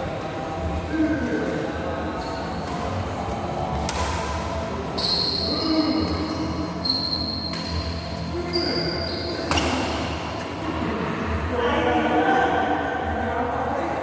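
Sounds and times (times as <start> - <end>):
shoes squeaking on court floor: 1.2 - 3.8, 4.8 - 10.6.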